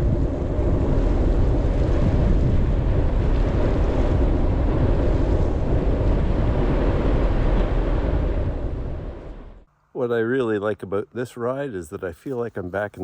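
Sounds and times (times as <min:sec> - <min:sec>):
wind rushing over microphone: 0:00.0 - 0:09.7.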